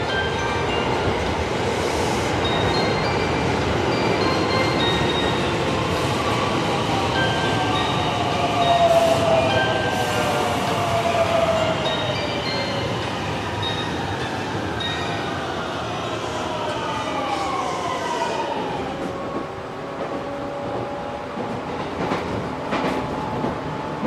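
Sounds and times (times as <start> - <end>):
falling train whine: 0.0 - 22.2
train rolling rumble: 18.5 - 24.0.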